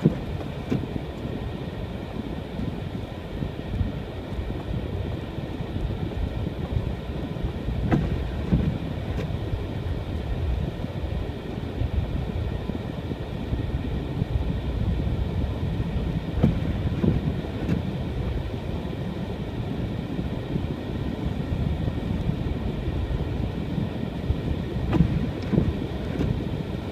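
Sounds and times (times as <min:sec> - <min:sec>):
car knocks and bumps: 0:00.0 - 0:01.0, 0:07.8 - 0:09.4, 0:16.3 - 0:17.9, 0:24.8 - 0:26.5
car engine and tyres rumbling: 0:00.0 - 0:26.9.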